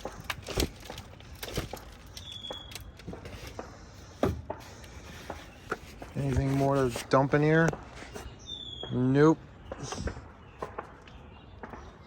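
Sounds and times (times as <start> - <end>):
handling noise: 0.0 - 8.3
dull thumps and knocks: 3.1 - 7.0.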